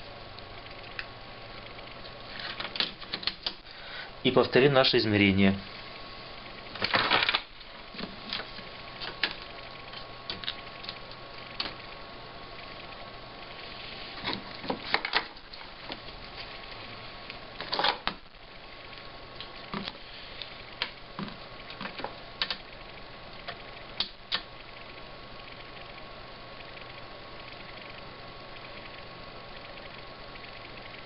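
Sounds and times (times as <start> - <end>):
steady background hiss: 0.0 - 31.0
small parts and tools clattering: 6.8 - 9.4, 14.2 - 15.7, 17.6 - 18.2.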